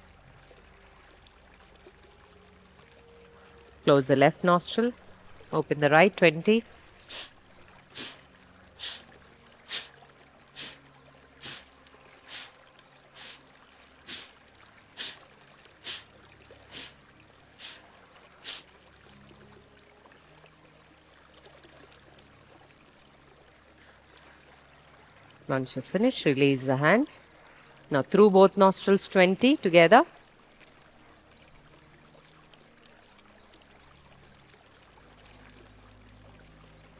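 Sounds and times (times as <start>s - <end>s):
stream trickling: 0.0s - 36.9s
forceful nasal exhalations: 7.0s - 8.2s, 8.8s - 10.0s, 10.6s - 10.8s, 11.4s - 12.6s, 13.2s - 13.4s, 14.1s - 14.4s, 15.0s - 15.2s, 15.8s - 16.1s, 16.7s - 17.0s, 17.6s - 17.8s, 18.4s - 18.7s.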